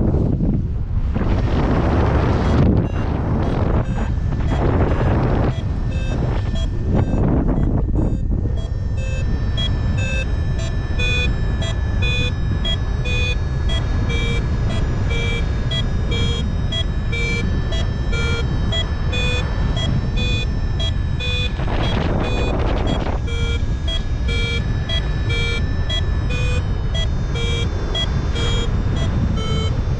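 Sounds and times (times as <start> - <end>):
wind rumble on microphone: 0.0 - 29.9
variometer beeping: 2.2 - 29.9.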